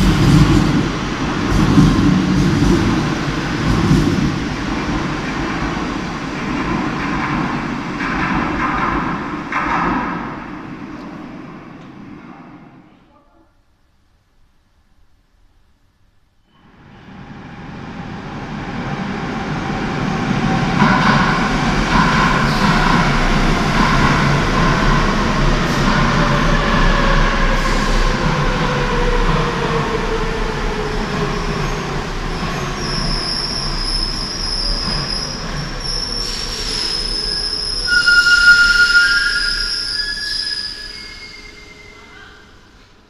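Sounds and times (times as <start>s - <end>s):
train rumble arriving: 0.0s - 13.1s, 16.5s - 43.0s
brake and wheel squeal: 32.8s - 42.4s.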